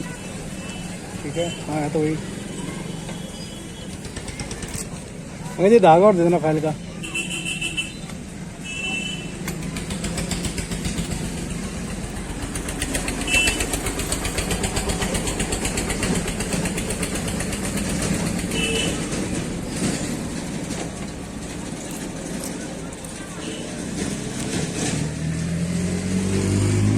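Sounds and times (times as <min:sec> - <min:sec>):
motorcycle engine running: 0:03.8 - 0:05.7, 0:09.2 - 0:26.4.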